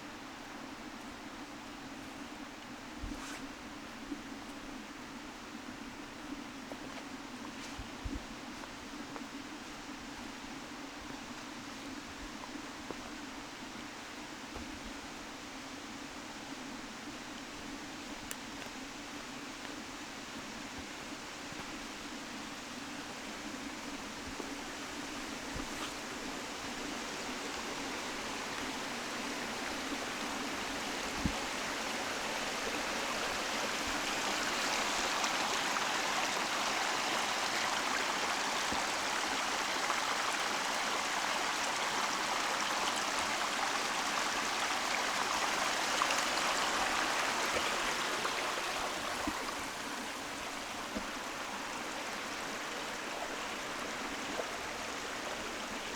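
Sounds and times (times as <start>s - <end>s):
stream rushing: 23.8s - 55.9s.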